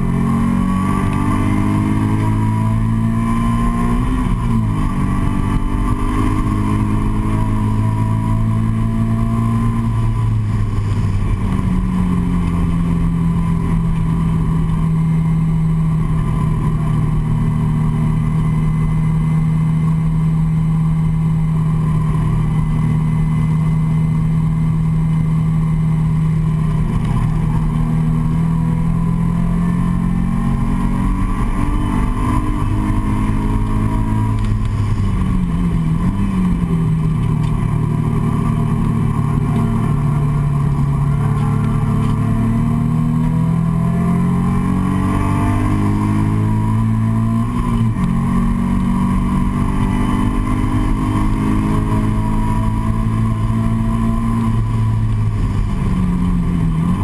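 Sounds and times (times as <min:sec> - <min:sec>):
car engine running hard: 0:00.0 - 0:57.0.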